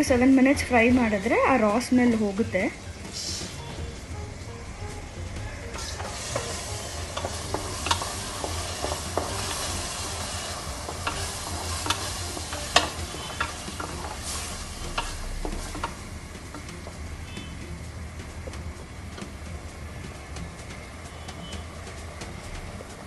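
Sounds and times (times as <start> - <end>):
paste sizzling in hot oil: 5.6 - 17.6
spoon tapping metal pot: 5.8 - 17.4.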